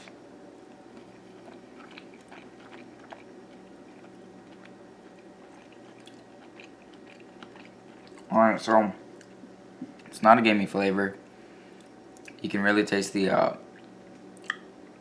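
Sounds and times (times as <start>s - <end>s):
faint crunchy chewing: 0.0s - 8.3s
steady low hum: 0.0s - 15.0s.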